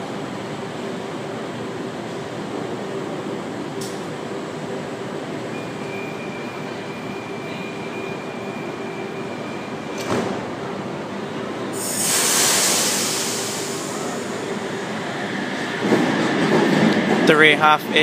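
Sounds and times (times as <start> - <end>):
high warning tone: 5.5 - 10.0
train doors sliding shut: 9.7 - 10.7, 11.8 - 14.4
train air hiss: 11.7 - 14.8.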